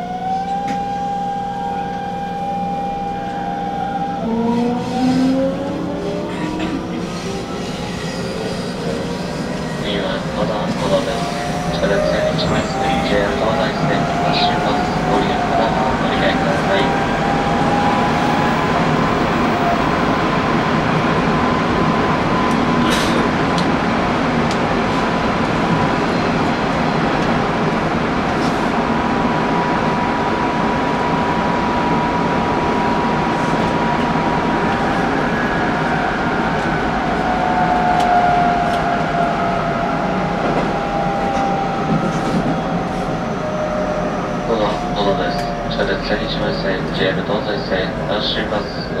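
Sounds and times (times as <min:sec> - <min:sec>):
train motor whine: 0:00.0 - 0:19.7
electric train rumbling: 0:00.0 - 0:49.0.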